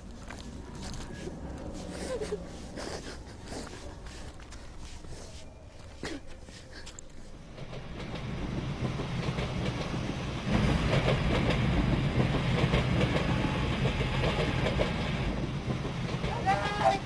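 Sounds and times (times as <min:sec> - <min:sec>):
train wheels rumbling on rails: 0:06.6 - 0:17.0.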